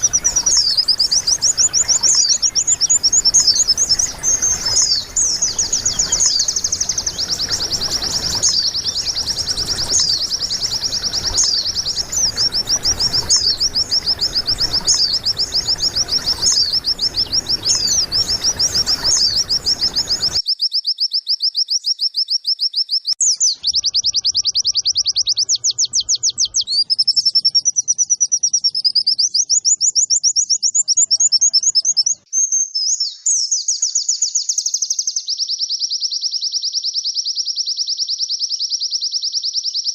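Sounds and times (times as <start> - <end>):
bird song with rapid chirps and trills: 0.0 - 39.9.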